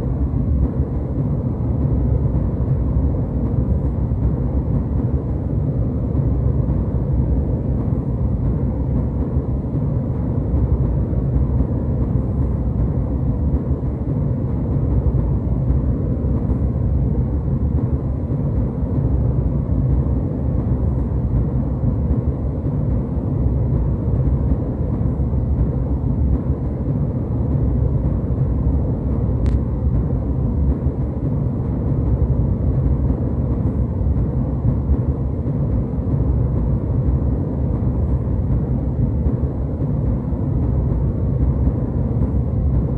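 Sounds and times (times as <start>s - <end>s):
airliner cabin engine rumble: 0.0s - 42.9s
faint click: 29.4s - 29.6s.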